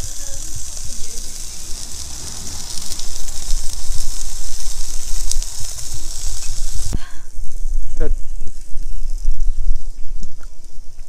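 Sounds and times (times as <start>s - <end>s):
steaks sizzling on a griddle: 0.0s - 7.0s
low rumble: 0.0s - 9.9s.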